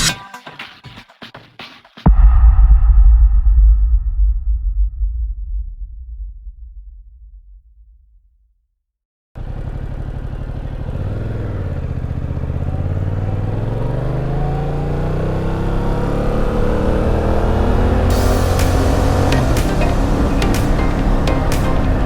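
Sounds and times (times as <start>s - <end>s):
motorcycle engine accelerating: 9.4s - 22.0s.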